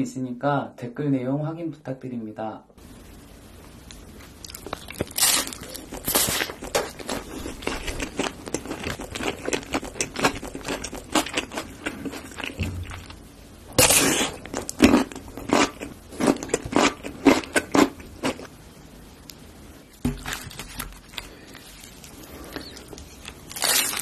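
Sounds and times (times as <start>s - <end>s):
crunchy bite and chewing: 4.3s - 18.5s, 22.2s - 24.0s.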